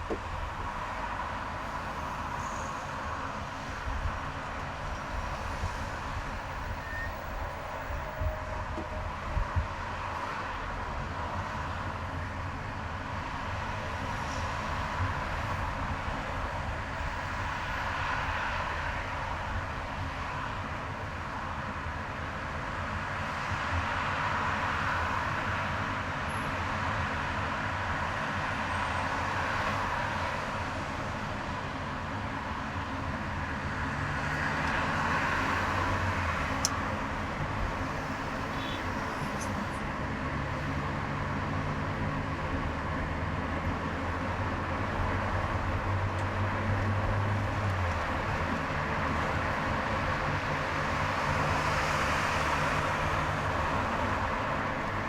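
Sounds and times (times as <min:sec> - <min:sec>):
car tyre and engine noise: 0:00.0 - 0:55.0.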